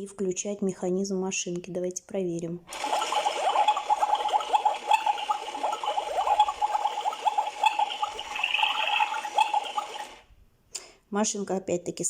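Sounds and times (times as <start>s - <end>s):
toy drum motor: 2.7s - 10.3s
quick falling electronic chirps: 2.8s - 10.2s.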